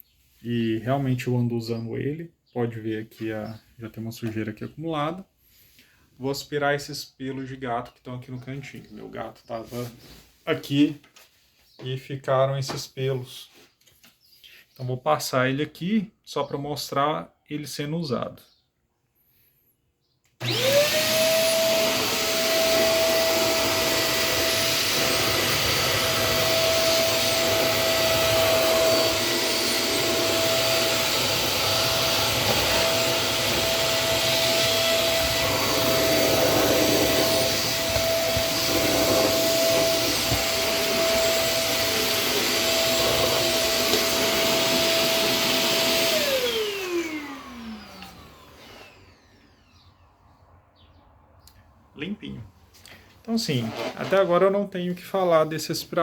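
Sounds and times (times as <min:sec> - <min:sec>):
vacuum cleaner motor whine: 0:20.4 - 0:50.0.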